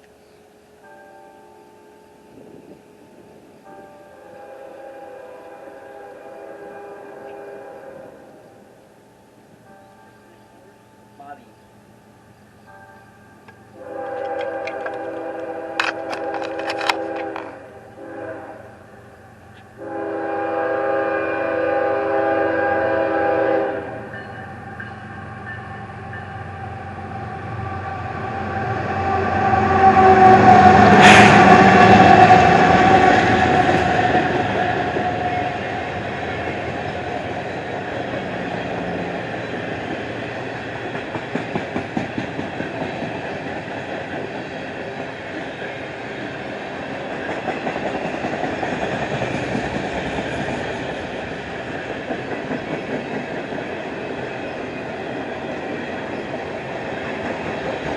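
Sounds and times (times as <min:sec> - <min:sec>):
diesel locomotives passing: 0:00.0 - 0:57.9
train horn blast: 0:04.1 - 0:08.6, 0:13.8 - 0:24.3, 0:25.8 - 0:35.8
wheels clacking over rail joints: 0:13.5 - 0:17.6.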